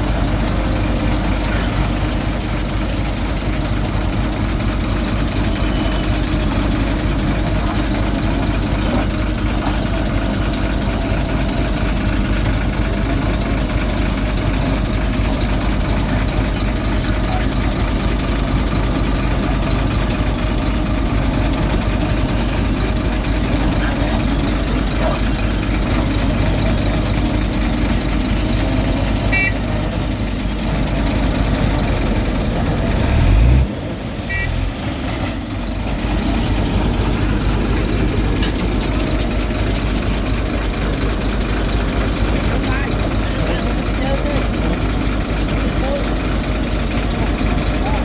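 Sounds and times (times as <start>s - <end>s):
diesel construction machinery rumble: 0.0s - 48.0s
short high beeps: 5.4s - 25.2s, 26.6s - 29.7s.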